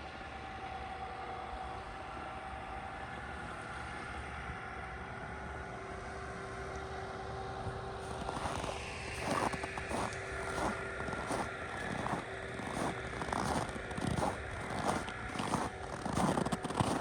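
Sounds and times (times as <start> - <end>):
faint hum: 0.0 - 17.0
distant drone: 8.0 - 17.0
footsteps crunching in snow: 8.0 - 17.0.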